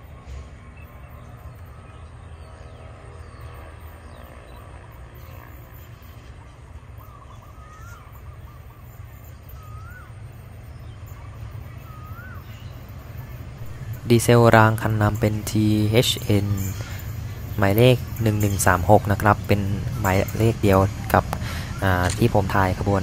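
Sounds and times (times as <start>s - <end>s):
bird whistling: 6.9s - 15.4s, 16.0s - 22.9s
low rumble: 11.5s - 23.0s.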